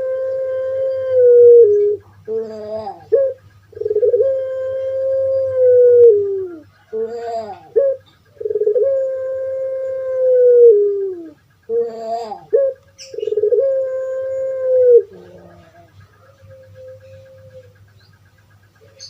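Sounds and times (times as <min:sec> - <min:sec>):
dove cooing: 0:00.0 - 0:19.0.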